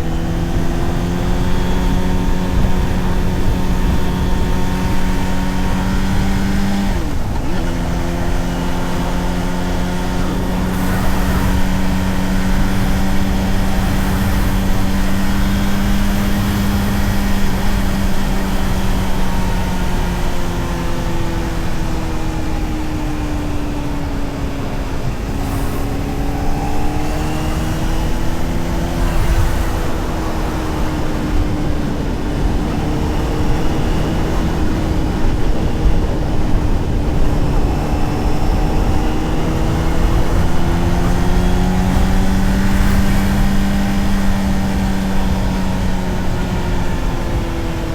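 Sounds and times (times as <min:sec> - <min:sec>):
motorcycle engine cruising: 0:00.0 - 0:47.9
wind rush: 0:00.0 - 0:47.9.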